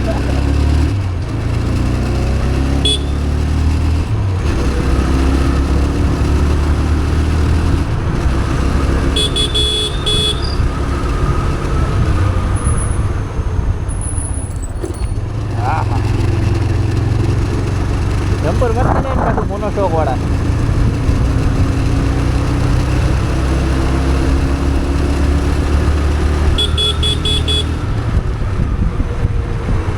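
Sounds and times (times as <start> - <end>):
motorcycle engine running: 0.0 - 13.9, 14.7 - 29.9
vehicle horn honking: 2.8 - 3.3, 9.0 - 10.7, 26.5 - 27.9
wind rumble on microphone: 17.2 - 22.0, 27.8 - 29.9.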